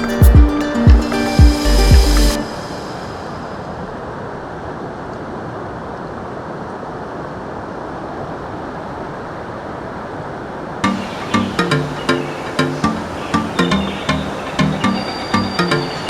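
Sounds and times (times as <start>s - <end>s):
waterfall roaring: 10.8s - 16.0s.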